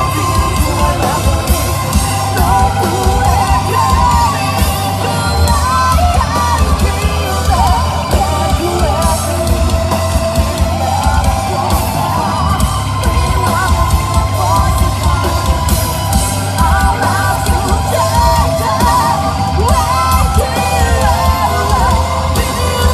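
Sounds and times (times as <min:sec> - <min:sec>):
live rock band playing: 0:00.0 - 0:22.9
person singing: 0:00.0 - 0:22.9.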